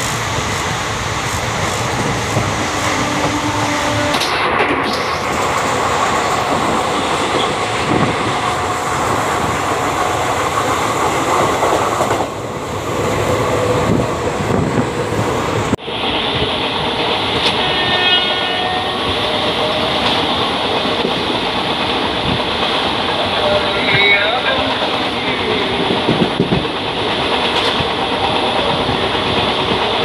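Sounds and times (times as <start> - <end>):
express train running: 0.0 - 30.0
train rushing past: 0.0 - 30.0.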